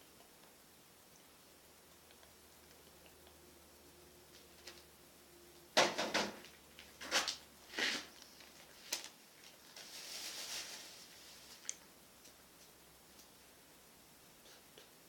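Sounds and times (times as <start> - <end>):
soft rustle: 6.8 - 12.7.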